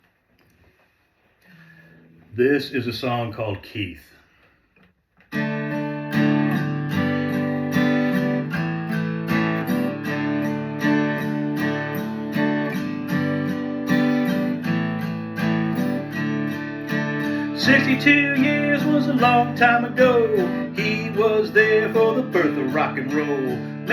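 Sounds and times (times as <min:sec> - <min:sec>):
acoustic guitar strumming: 0:05.3 - 0:23.9.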